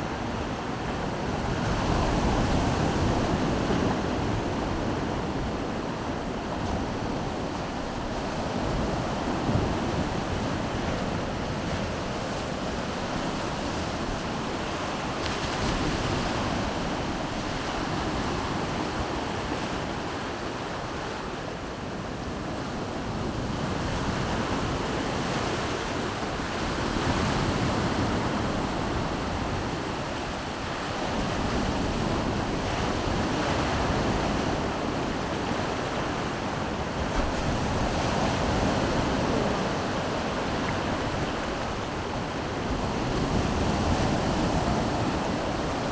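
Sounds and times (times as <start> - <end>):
wind on microphone: 22.4 - 45.9
surf breaking on shore: 24.3 - 45.9.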